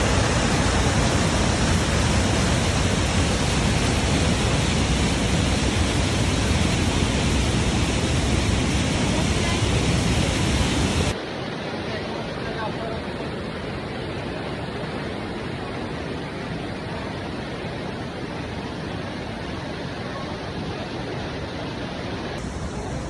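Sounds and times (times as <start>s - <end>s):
waterfall rushing: 0.0s - 11.4s.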